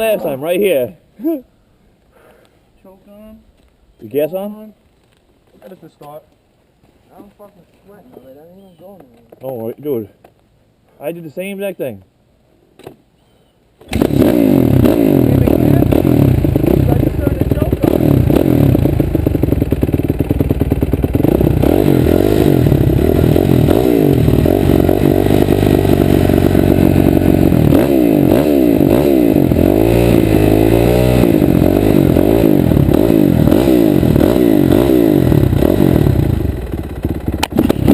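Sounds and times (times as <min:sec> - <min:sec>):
dirt bike engine revving: 0:13.9 - 0:37.9.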